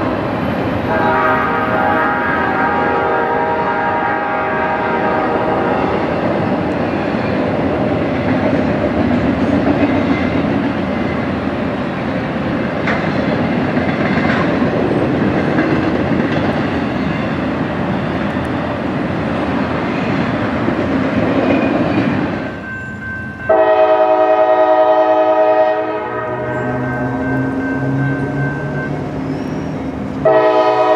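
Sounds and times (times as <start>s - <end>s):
train wheels rumbling on rails: 0.0s - 30.9s
locomotive horn: 0.8s - 6.1s, 23.5s - 30.9s.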